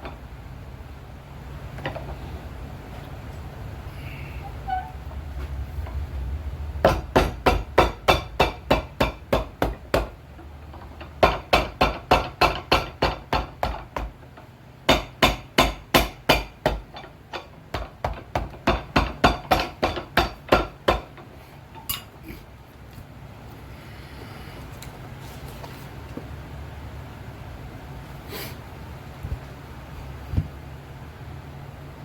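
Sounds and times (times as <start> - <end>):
hammer striking a shoe: 6.9 - 10.2, 11.2 - 14.2, 14.9 - 17.0, 17.7 - 21.1.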